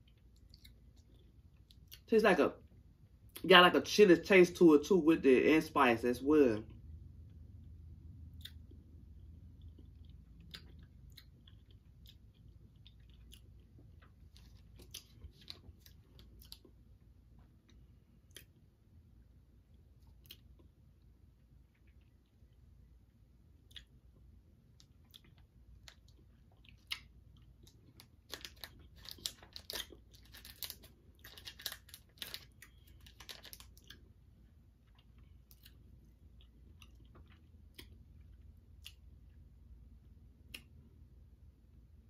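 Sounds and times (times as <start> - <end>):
person chewing candy: 0.0 - 2.1, 6.7 - 18.7, 19.7 - 39.5
plastic wrapper crinkling: 27.8 - 34.0.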